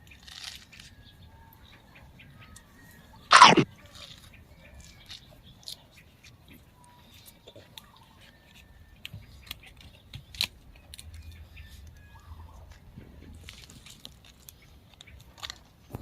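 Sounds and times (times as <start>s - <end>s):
chewing raw vegetables: 0.0s - 0.9s, 3.3s - 11.9s, 13.3s - 15.8s
wet mouth clicks: 3.3s - 3.6s.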